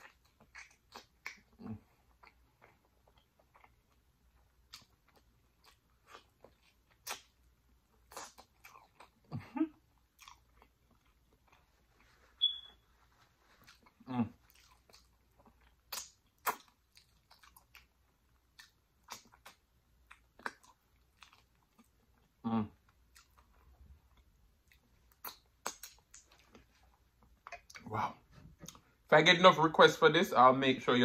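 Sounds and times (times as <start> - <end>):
chewing and wet mouth clicks: 0.0 - 9.2, 10.0 - 11.7, 13.6 - 22.3, 22.9 - 27.9.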